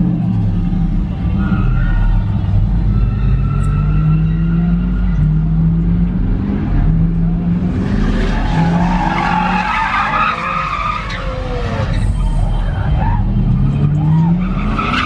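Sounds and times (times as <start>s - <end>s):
car tires screeching: 1.2s - 5.8s, 7.6s - 15.0s.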